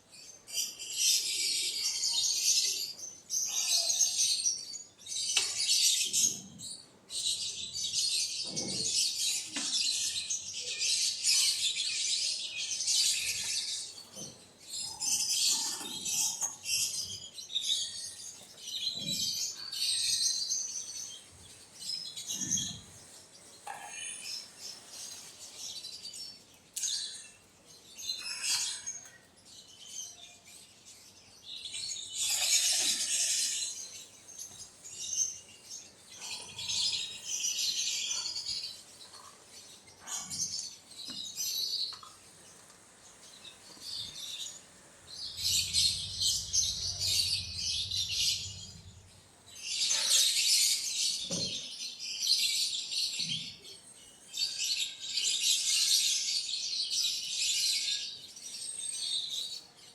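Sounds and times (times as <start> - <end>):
quail chirping: 43.6 - 49.2.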